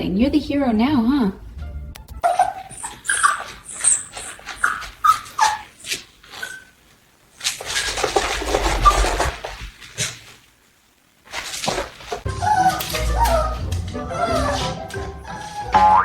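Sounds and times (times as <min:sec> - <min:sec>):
dog whining: 0:02.2 - 0:06.8, 0:12.3 - 0:16.0
scuffling noise: 0:11.2 - 0:15.7.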